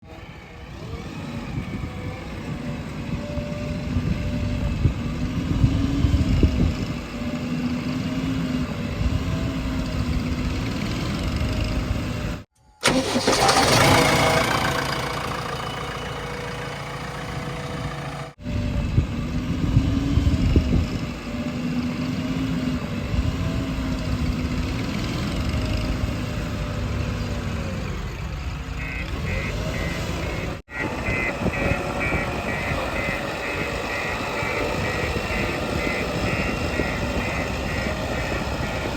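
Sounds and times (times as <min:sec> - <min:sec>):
heavy diesel engines working: 0:00.0 - 0:38.9
harsh bright engine sound: 0:12.8 - 0:27.0, 0:28.7 - 0:38.9.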